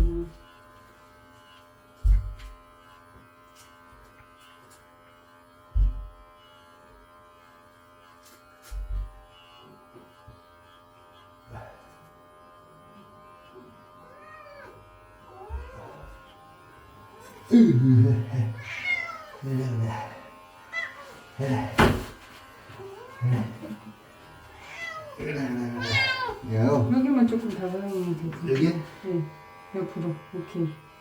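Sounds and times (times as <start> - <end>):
electric clippers buzzing: 0.0 - 31.0
cat meowing: 14.1 - 14.8, 18.6 - 19.4, 20.7 - 21.1, 24.6 - 26.4.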